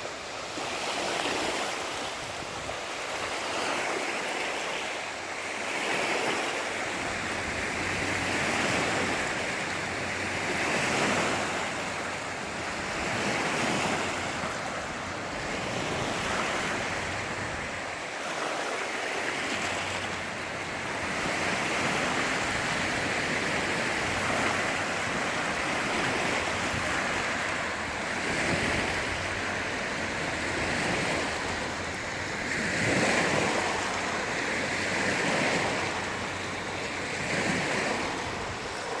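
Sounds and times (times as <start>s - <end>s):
sea waves washing ashore: 0.0s - 39.0s
wind on microphone: 19.2s - 39.0s.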